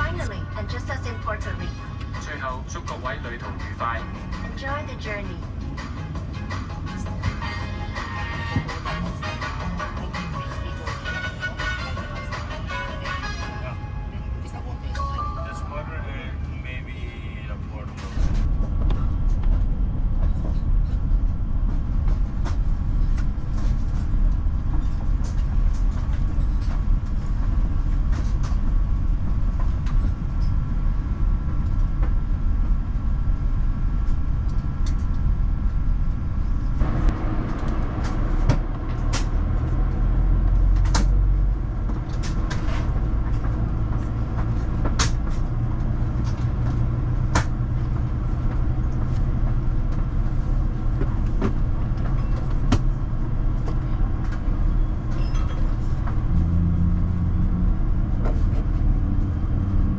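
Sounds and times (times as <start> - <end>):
deep airplane engine rumble: 0.0 - 59.9.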